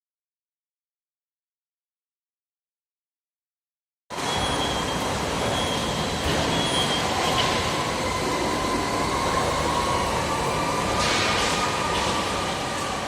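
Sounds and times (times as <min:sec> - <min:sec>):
industrial furnace running: 0:04.1 - 0:13.0
faint steady whine: 0:04.2 - 0:13.0.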